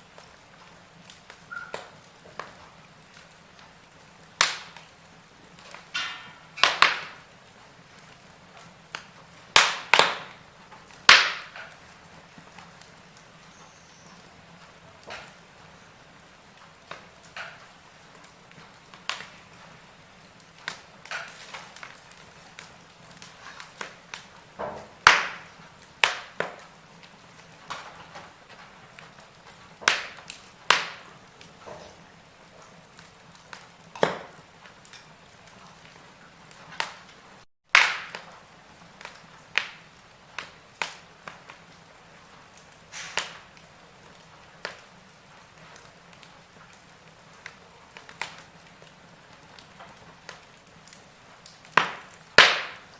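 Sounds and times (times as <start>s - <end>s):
fire popping: 0.0s - 52.9s
wood fire crackling: 0.0s - 52.9s
faint hiss: 39.2s - 43.6s.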